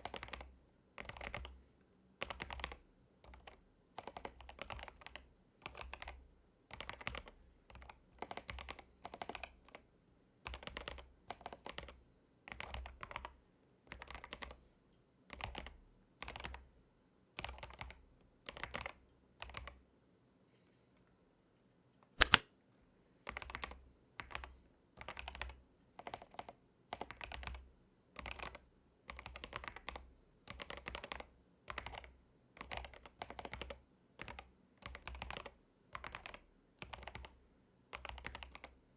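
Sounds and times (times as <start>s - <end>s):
fast typing on mechanical keyboard: 0.0s - 1.6s, 2.2s - 9.8s, 10.4s - 14.6s, 15.3s - 16.6s, 17.4s - 19.8s, 22.2s - 22.4s, 23.3s - 27.6s, 28.2s - 38.8s
loud sharp click: 22.2s - 22.5s.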